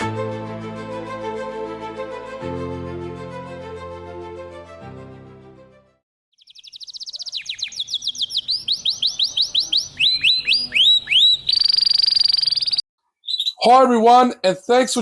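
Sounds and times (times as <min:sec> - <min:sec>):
canary singing: 0:06.3 - 0:13.6.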